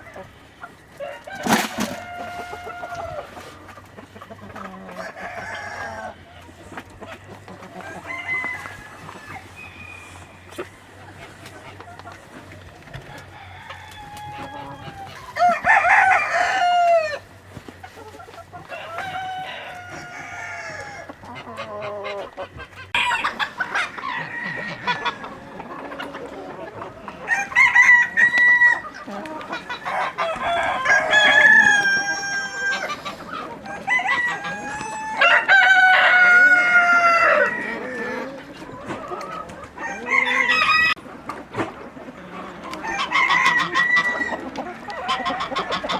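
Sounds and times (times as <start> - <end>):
roosters crowing: 0.0 - 41.1, 42.2 - 45.9
chickens clucking: 0.0 - 45.9.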